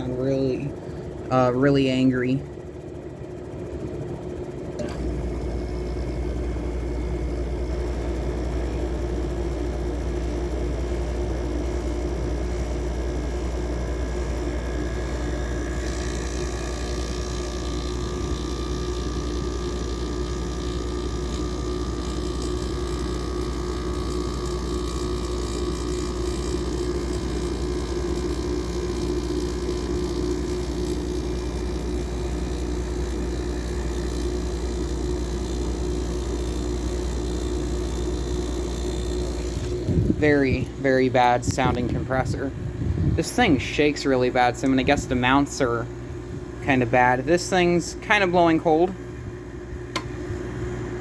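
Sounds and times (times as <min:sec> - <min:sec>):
air conditioner fan running: 0:00.0 - 0:51.0
compressor humming: 0:00.0 - 0:51.0.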